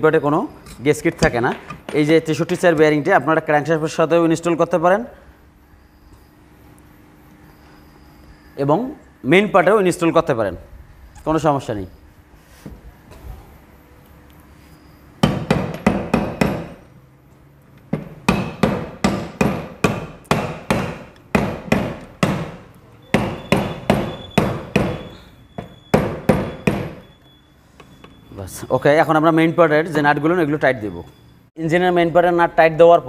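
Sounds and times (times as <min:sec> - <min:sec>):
hammer tapping on metal: 0:15.2 - 0:16.8.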